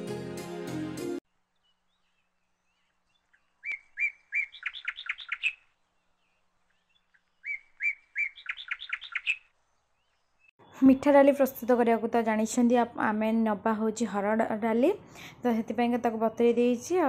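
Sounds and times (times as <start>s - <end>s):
songbird singing: 1.2s - 12.1s.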